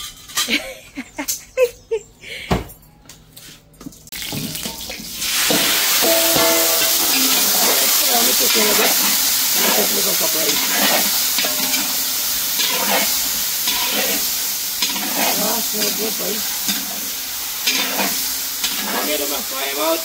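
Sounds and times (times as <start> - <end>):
chicken sizzling in hot oil: 4.1 - 20.0.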